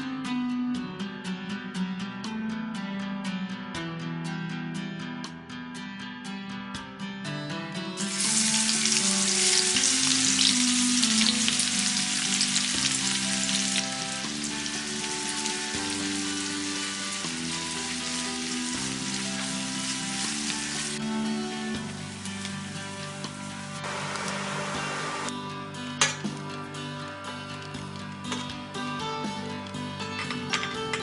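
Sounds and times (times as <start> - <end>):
background music: 0.0 - 31.0
food sizzling in a pan: 8.0 - 25.3.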